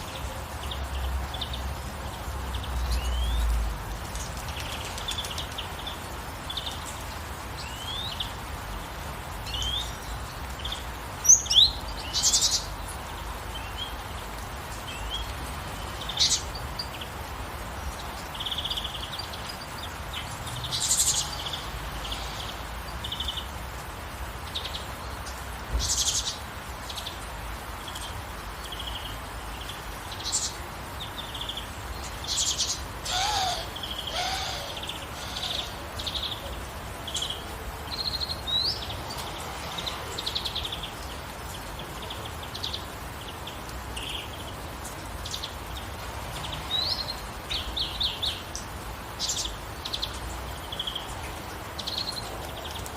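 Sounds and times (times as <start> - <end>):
rain hissing: 0.0 - 52.9
songbirds chirping and trilling: 0.0 - 52.9
low gliding bird call: 33.0 - 35.8.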